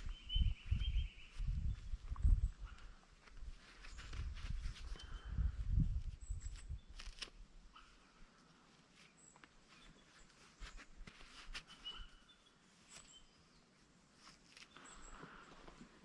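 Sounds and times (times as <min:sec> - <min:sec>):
faint bird chirps: 0:00.0 - 0:03.0, 0:04.8 - 0:05.6, 0:06.2 - 0:13.8, 0:14.6 - 0:15.6.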